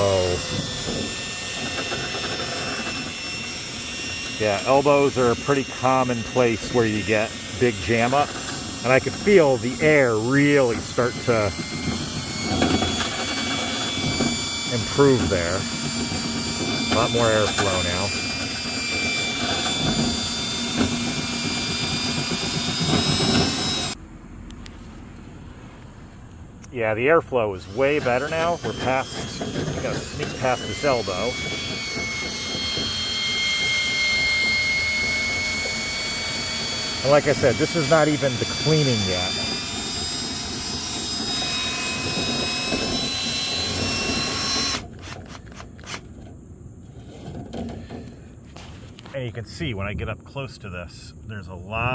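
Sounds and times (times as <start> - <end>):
power drill whining: 0.0 - 24.0, 27.4 - 46.2
rods rattling in duct: 0.0 - 24.0.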